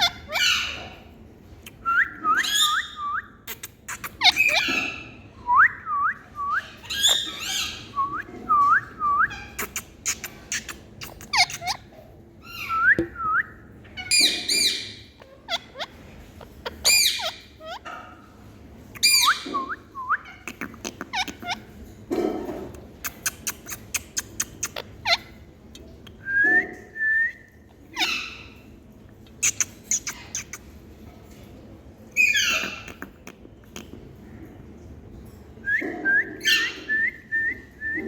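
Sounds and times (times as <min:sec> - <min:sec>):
parrot shrill calls and clicks: 0:02.4 - 0:05.0, 0:09.3 - 0:11.8, 0:16.6 - 0:17.9, 0:23.0 - 0:26.2, 0:29.3 - 0:30.7, 0:32.2 - 0:33.9.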